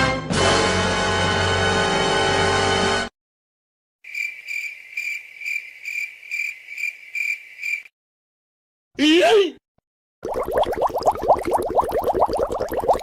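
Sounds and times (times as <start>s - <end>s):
cricket chirping: 4.0s - 7.9s.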